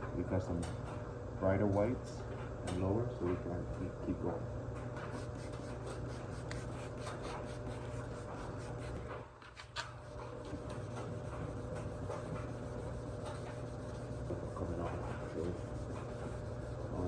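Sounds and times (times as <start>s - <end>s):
sandpaper scraping plastic: 5.0s - 17.0s.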